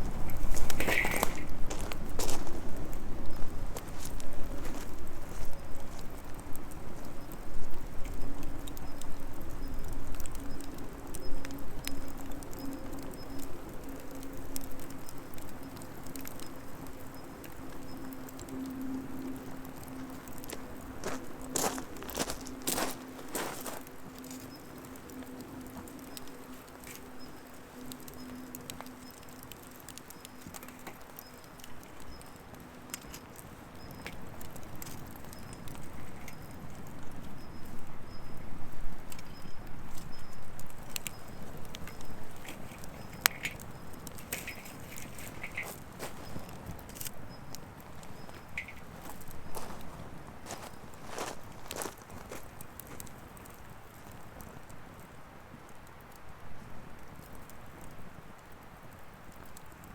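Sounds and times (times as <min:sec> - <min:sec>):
faint steady hum: 0:00.0 - 0:59.9
wood fire crackling: 0:00.0 - 0:59.9.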